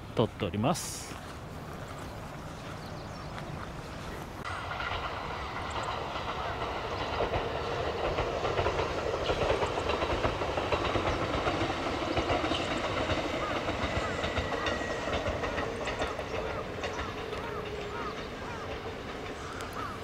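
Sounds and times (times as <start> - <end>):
electric train running past: 0.0 - 20.0
wheel clicks over rail joints: 4.7 - 20.0.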